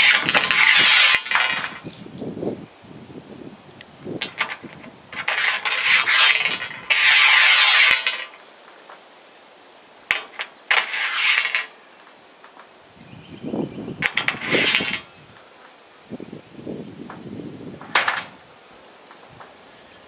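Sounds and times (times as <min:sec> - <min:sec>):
metal scraping and rasping: 0:00.0 - 0:02.0, 0:04.2 - 0:08.4, 0:10.1 - 0:11.7, 0:14.0 - 0:15.1.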